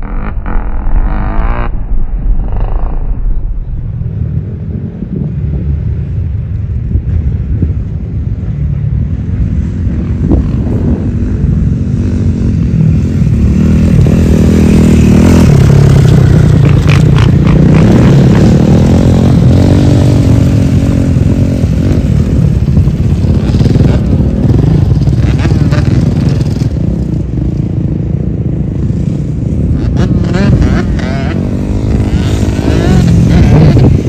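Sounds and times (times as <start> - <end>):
dirt bike engine revving: 0.0 - 3.0, 10.3 - 27.0, 29.8 - 34.0.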